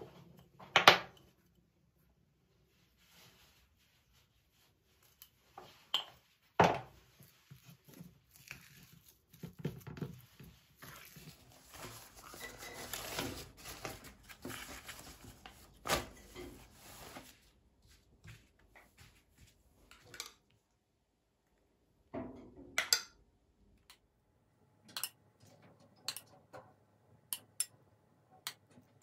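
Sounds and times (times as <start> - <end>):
rustling and crinkling: 2.6 - 20.3.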